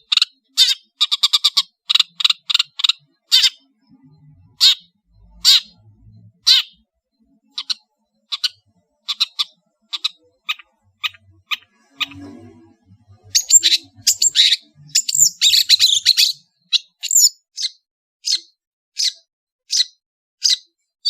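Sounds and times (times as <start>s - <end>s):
bird sharp high calls: 0.0s - 3.7s, 4.5s - 5.8s, 6.4s - 12.4s, 13.3s - 20.7s
bird warbling: 6.4s - 6.8s, 7.4s - 12.4s, 13.3s - 17.7s.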